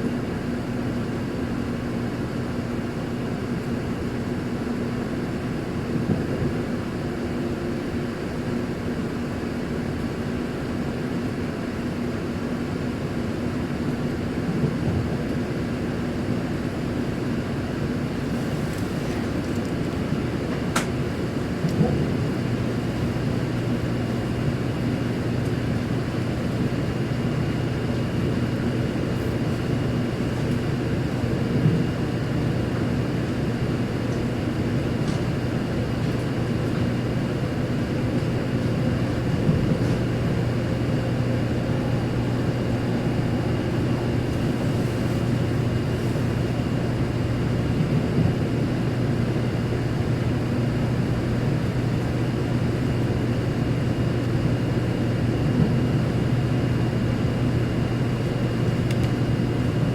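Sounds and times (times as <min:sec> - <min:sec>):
train interior drone and rushing: 0:00.0 - 0:59.9
faint high whine: 0:37.3 - 0:47.6.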